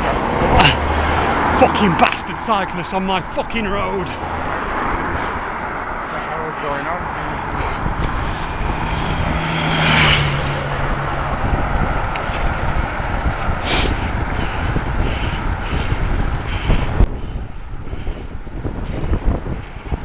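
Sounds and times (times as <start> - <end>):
car passing by: 0.0 - 14.8
wind buffeting microphone: 0.0 - 20.0.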